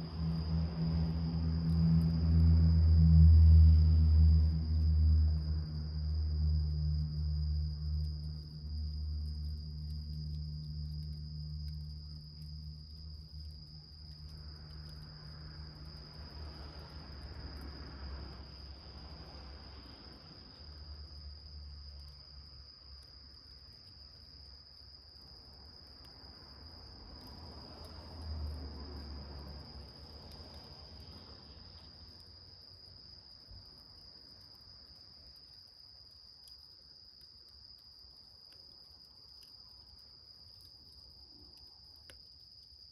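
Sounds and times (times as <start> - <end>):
low rumble: 0.0 - 9.3
crickets trilling: 0.0 - 42.9.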